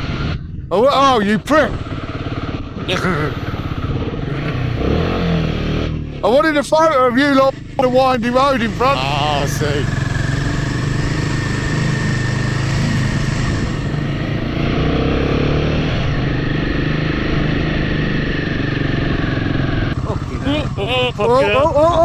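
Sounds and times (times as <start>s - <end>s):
motorcycle engine running: 1.7s - 22.0s
thin steady whine: 6.0s - 14.8s.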